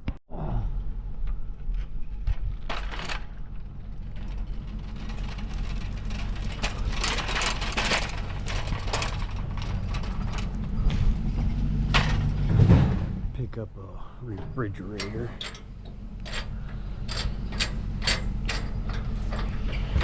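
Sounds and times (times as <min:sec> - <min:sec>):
metallic rattling and clinking: 0:02.5 - 0:10.8, 0:14.6 - 0:20.0
truck engine droning: 0:03.5 - 0:20.0.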